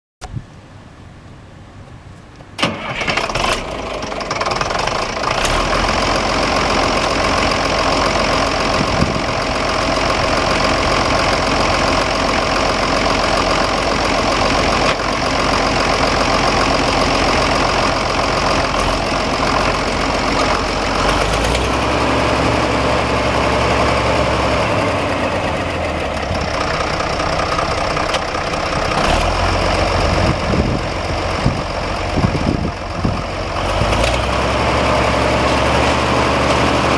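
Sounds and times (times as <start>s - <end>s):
tractor engine starting and running: 2.2s - 36.9s.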